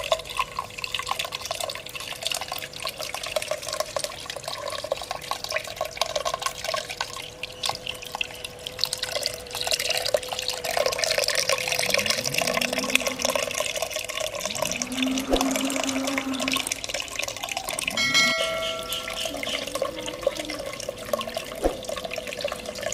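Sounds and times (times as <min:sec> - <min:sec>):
faint steady hum: 0:00.0 - 0:22.9
water trickling in fountain: 0:00.0 - 0:22.9
brief ringing tone: 0:17.8 - 0:19.8.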